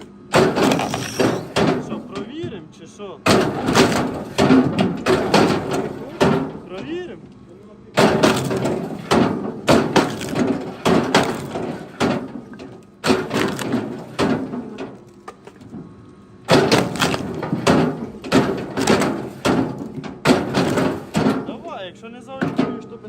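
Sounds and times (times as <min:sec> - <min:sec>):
wood chunks knocking and clattering: 0:00.3 - 0:02.6, 0:03.3 - 0:07.0, 0:08.0 - 0:15.9, 0:16.5 - 0:21.6.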